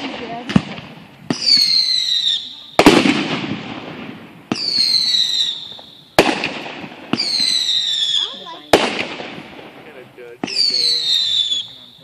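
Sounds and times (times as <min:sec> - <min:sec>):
firework bang: 0:00.0 - 0:11.8
firework whistle falling in pitch: 0:10.6 - 0:12.0.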